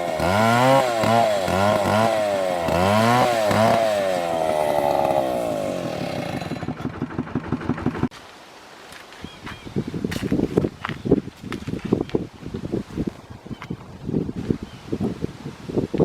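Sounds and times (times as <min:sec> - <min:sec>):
chainsaw running: 0:00.0 - 0:08.1.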